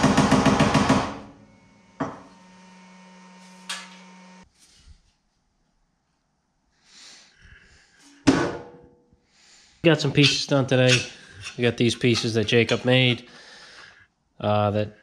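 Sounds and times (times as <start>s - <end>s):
machine hum: 0.0s - 4.4s.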